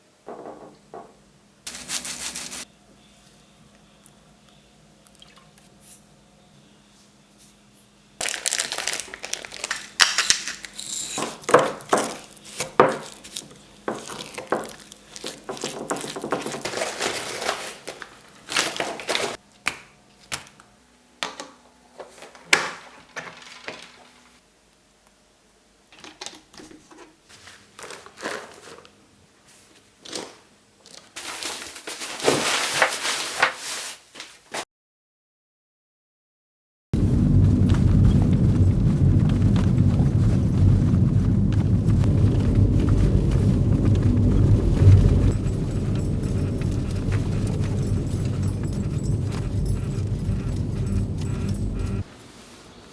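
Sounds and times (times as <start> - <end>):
plastic packaging crinkling: 1.7 - 2.7, 8.2 - 19.4.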